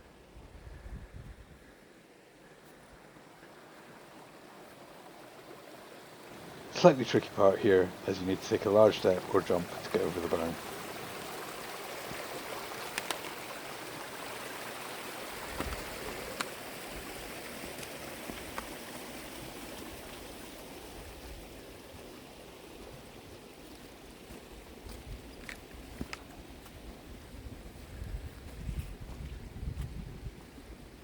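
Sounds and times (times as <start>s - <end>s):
stream water rushing: 2.3s - 26.8s
faint clicks: 12.9s - 13.4s.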